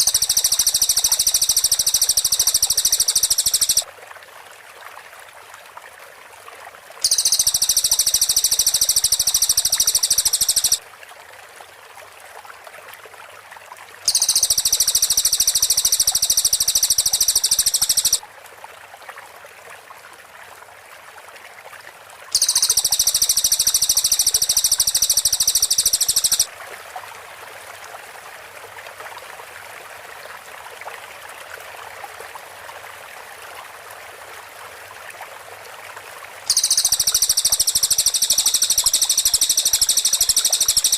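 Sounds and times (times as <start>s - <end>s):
bird rapid high-pitched trill: 0.0s - 3.8s, 7.0s - 10.8s, 14.1s - 18.2s, 22.4s - 26.5s, 36.5s - 40.9s
faint steady hiss: 0.0s - 5.8s, 6.8s - 10.8s, 14.0s - 18.2s, 22.2s - 40.9s.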